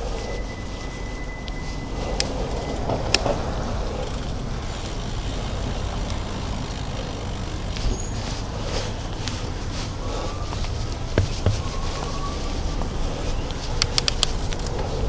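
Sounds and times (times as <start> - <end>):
wind and road noise: 0.0 - 15.0
sharp clicks: 2.1 - 8.3, 13.8 - 14.8.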